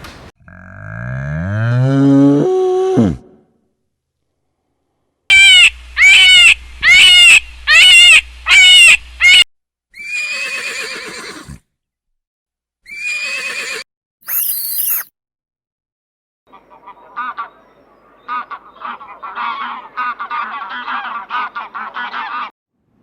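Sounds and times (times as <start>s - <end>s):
animal calls: 5.3s - 9.4s.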